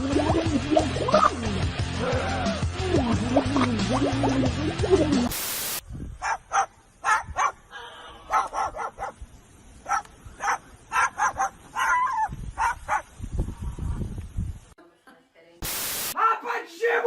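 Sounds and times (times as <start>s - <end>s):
loud hiss: 5.2s - 5.8s, 15.6s - 16.2s
dog barking in sharp yaps: 6.2s - 7.6s, 8.3s - 9.2s, 9.8s - 13.1s.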